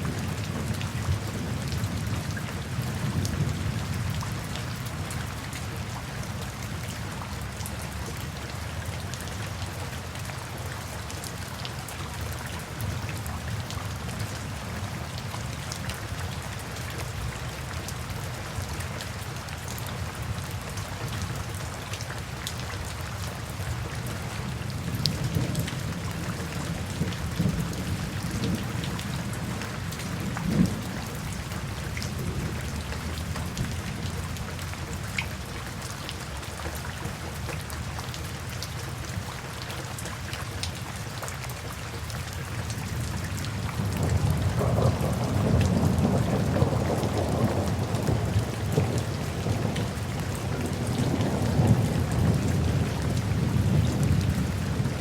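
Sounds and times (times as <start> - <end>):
steady rain: 0.0 - 55.0
thunder rumble: 43.8 - 55.0.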